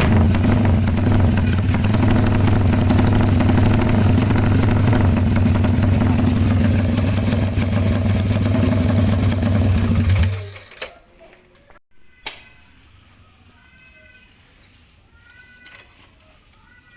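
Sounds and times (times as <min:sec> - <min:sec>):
motorcycle idling: 0:00.0 - 0:10.5.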